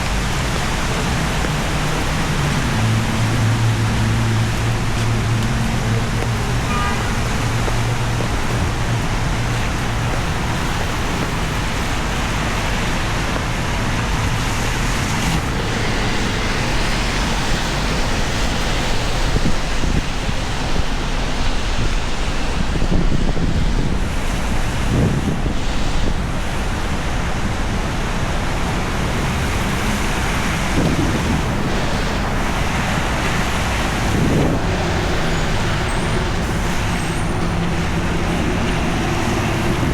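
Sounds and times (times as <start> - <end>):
heavy rain on street: 0.0 - 39.9
vehicles passing on wet road: 0.0 - 39.9.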